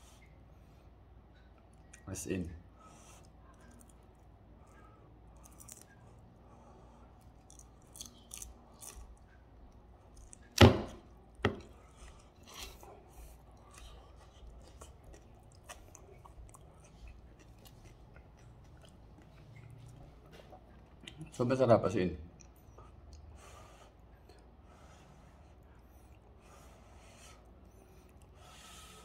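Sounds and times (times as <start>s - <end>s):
chewing and crunching: 3.0s - 21.4s.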